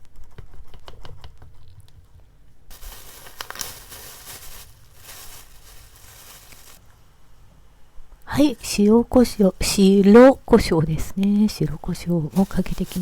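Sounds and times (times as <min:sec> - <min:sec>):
packaging rustling and crinkling: 0:02.7 - 0:06.8, 0:12.2 - 0:13.0.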